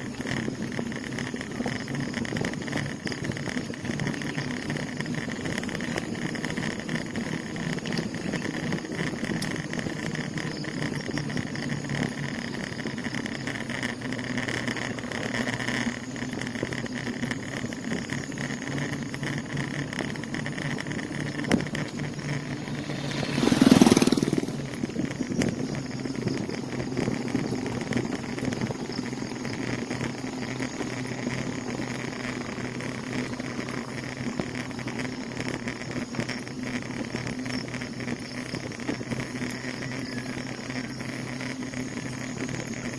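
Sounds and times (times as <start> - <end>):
bicycle riding noise: 0.0 - 42.9
motor vehicle passing: 3.8 - 37.8.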